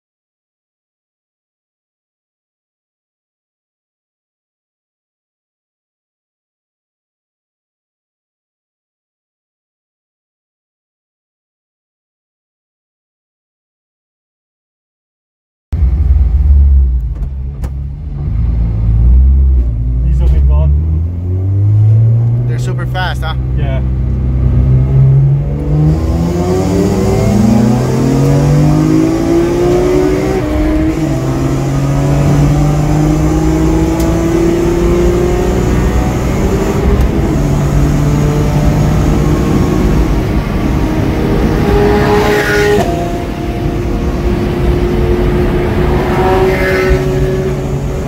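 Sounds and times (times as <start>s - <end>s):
car engine revving: 15.8s - 48.0s.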